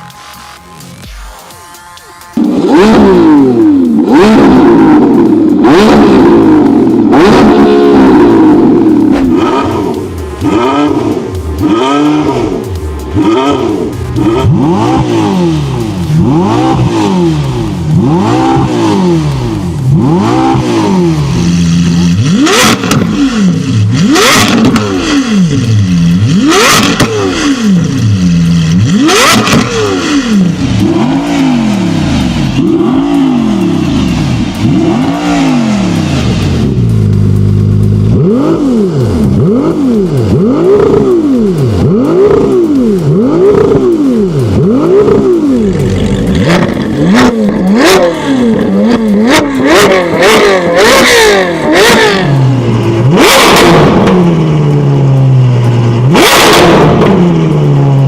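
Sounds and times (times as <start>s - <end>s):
exhaust bangs: 2.4s - 58.0s
sports car engine revving: 2.4s - 58.0s.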